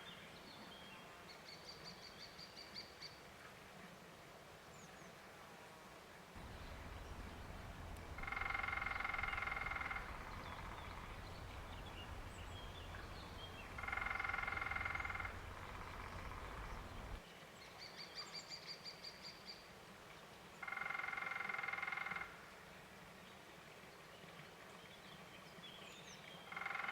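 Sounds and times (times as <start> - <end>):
woodpecker drumming: 6.4 - 17.2.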